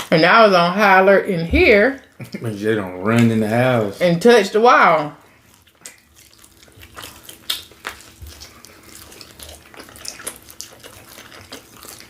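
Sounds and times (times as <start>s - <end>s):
wet chewing: 2.0s - 4.4s, 5.2s - 12.0s
lip smacks: 5.6s - 12.0s.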